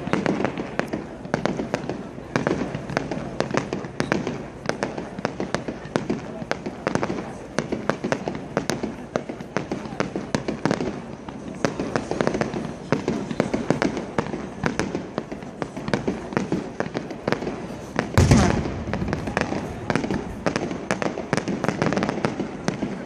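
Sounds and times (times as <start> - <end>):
fireworks crackling bursts: 0.0 - 23.0
loud firework boom: 18.2 - 21.6.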